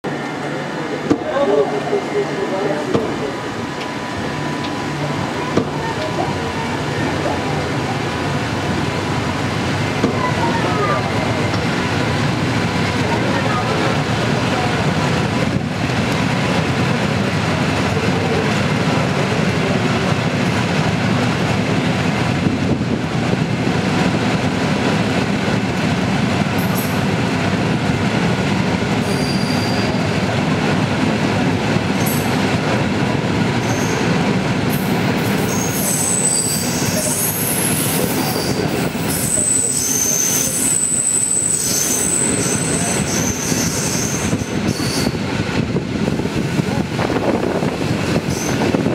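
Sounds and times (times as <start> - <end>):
train wheels rumbling on rails: 0.1 - 48.9
wheel squeals: 29.0 - 30.1, 35.4 - 45.2.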